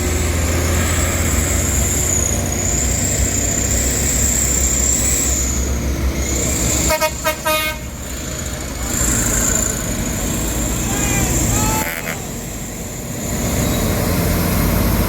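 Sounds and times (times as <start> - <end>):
diesel truck engine rumbling: 0.0 - 15.0
truck horn toots: 6.7 - 8.0, 11.1 - 12.4.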